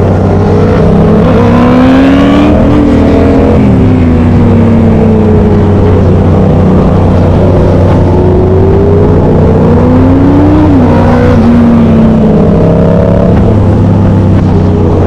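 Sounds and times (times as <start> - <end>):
steady low drone: 0.0 - 15.0
vehicle engines revving: 0.0 - 15.0.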